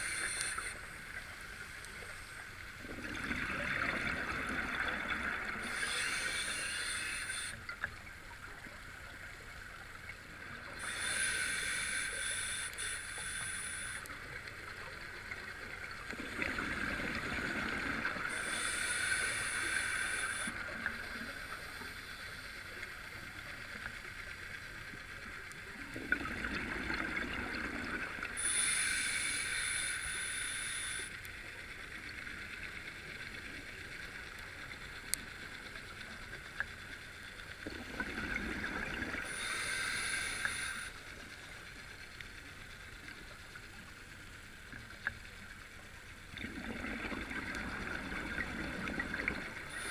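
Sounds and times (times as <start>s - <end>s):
regulator hiss: 0.0s - 2.7s, 4.8s - 7.7s, 10.6s - 16.1s, 17.4s - 25.3s, 28.2s - 32.2s, 39.2s - 41.8s
exhaled bubbles gurgling: 2.8s - 6.6s, 15.8s - 21.3s, 25.7s - 28.8s, 37.6s - 40.8s, 46.3s - 49.9s
underwater hush: 37.8s - 40.9s.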